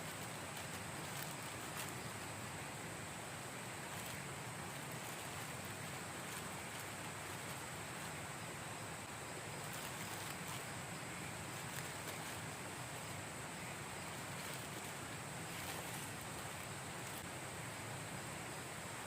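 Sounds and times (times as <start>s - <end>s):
faint high hiss: 0.0s - 19.0s
wind: 0.0s - 19.0s.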